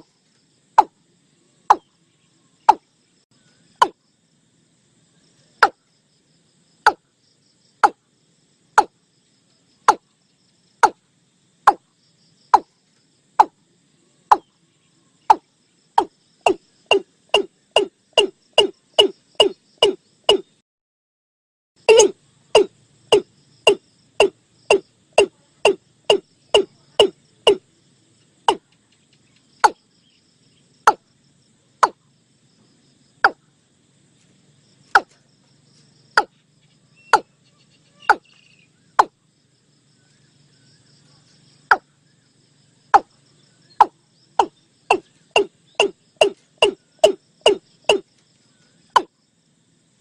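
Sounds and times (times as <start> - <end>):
bird calling deep clipped notes: 14.3 - 14.5, 15.3 - 20.6, 21.9 - 27.6, 37.0 - 39.1, 43.7 - 48.0.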